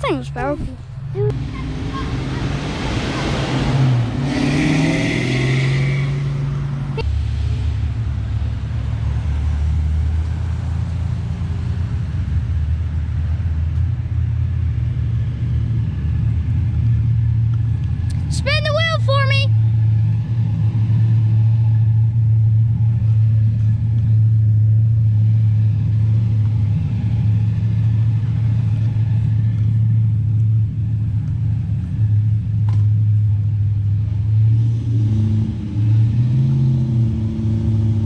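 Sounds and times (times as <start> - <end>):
car engine revving during burnout: 1.3 - 12.1.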